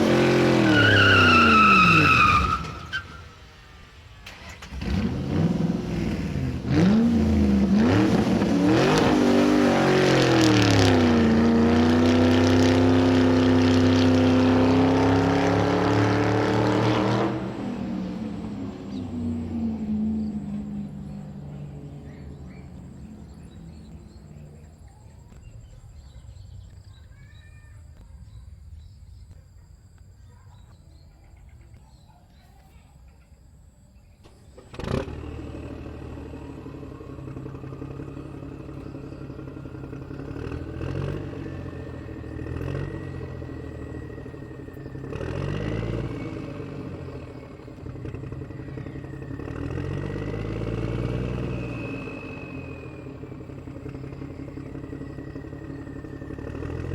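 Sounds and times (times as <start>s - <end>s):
motor whining and revving: 34.6s - 56.9s.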